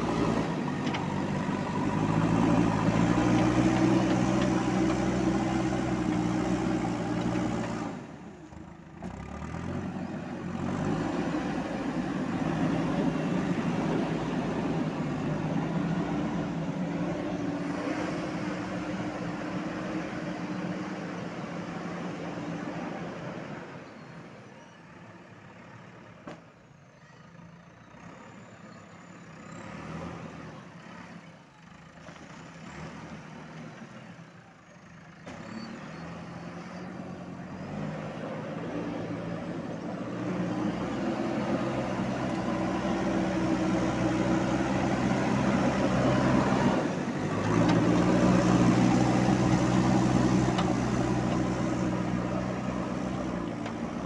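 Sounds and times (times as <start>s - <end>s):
diesel engine running: 0.0s - 23.2s, 36.4s - 54.0s.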